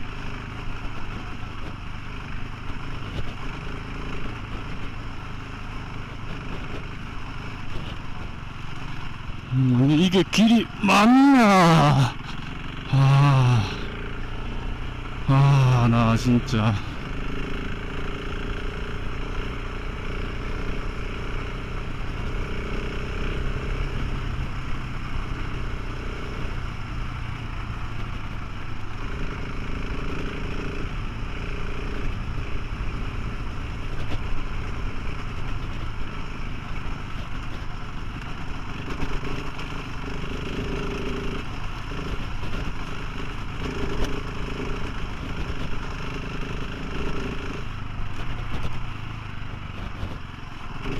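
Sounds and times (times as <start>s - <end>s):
motorcycle engine running: 0.0s - 9.9s, 16.3s - 50.9s
road and wind noise: 0.0s - 10.8s, 12.1s - 13.0s, 13.7s - 15.3s, 16.2s - 50.9s.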